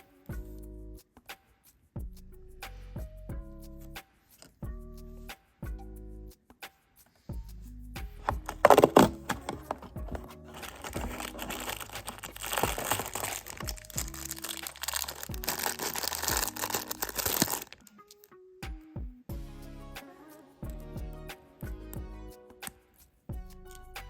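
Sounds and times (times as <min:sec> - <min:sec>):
soft background music: 0:00.0 - 0:01.2, 0:02.0 - 0:24.0
packaging crinkling and tearing: 0:08.4 - 0:18.3.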